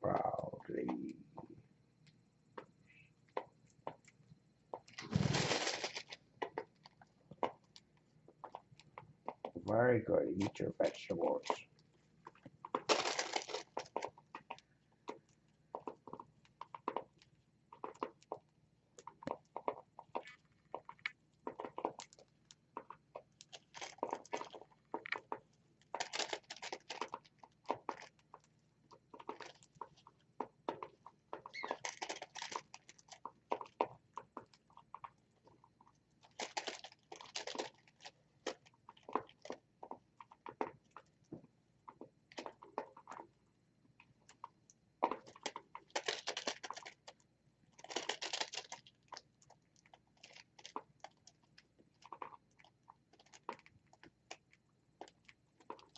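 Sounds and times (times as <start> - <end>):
birds crunching seeds: 3.3 - 9.4, 19.0 - 41.0, 44.3 - 55.9
birds pecking at a dish: 13.6 - 43.3.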